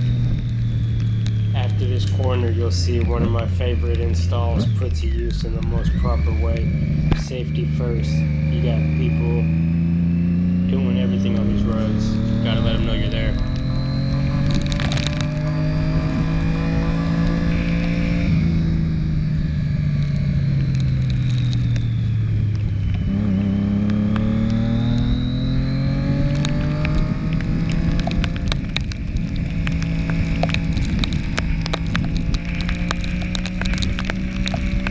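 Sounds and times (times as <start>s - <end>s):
motorcycle engine running: 0.0s - 34.9s
sharp ticks and crackles: 11.2s - 15.5s, 19.9s - 25.2s, 26.1s - 34.9s.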